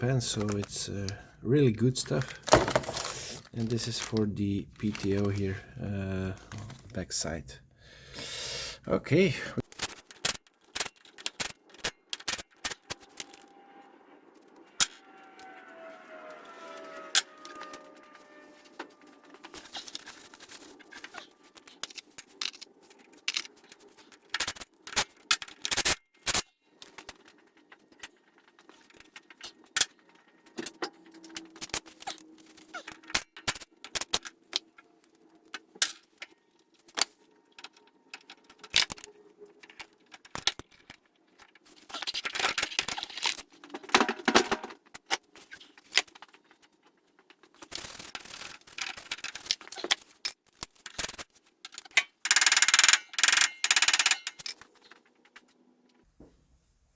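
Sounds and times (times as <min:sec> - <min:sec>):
tools and parts clinking: 0:02.0 - 0:05.5, 0:16.6 - 0:56.0
scraping and rubbing: 0:02.0 - 0:05.8, 0:12.5 - 0:24.9.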